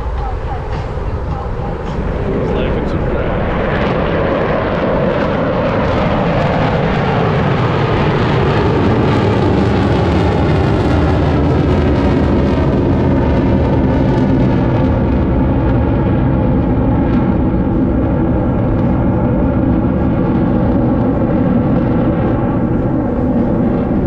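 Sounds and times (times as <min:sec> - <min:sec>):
jets flying over: 0:00.0 - 0:24.0.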